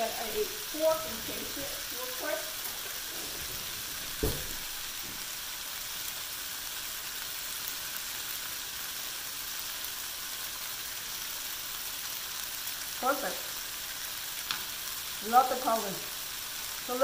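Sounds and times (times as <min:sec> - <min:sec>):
tofu sizzling in wok: 0:00.0 - 0:17.0
dull thump: 0:04.1 - 0:05.2.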